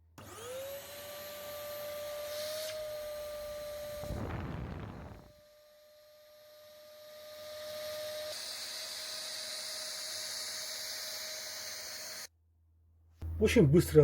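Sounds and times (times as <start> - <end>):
faint whine: 4.0 - 5.3.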